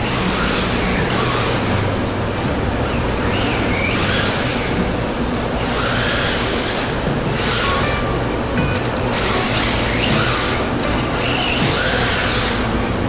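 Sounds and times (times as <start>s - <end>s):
tyre and ground noise: 0.0s - 13.0s.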